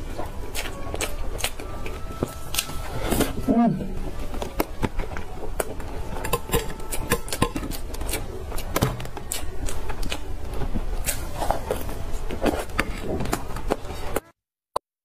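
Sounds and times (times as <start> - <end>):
chewing with mouth clicks and smacks: 0.0 - 3.4, 4.1 - 14.2.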